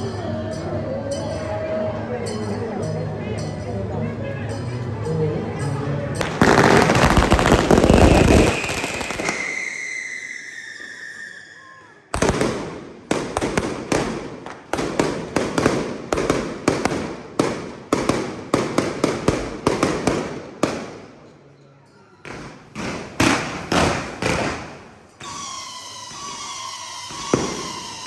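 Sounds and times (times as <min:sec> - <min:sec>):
sharp firework bangs: 0:06.2 - 0:10.0, 0:12.2 - 0:21.2, 0:22.3 - 0:28.0
fireworks barrage: 0:06.2 - 0:11.5, 0:12.1 - 0:21.3, 0:22.3 - 0:28.0
falling firework whistle: 0:06.2 - 0:12.4, 0:25.2 - 0:28.0.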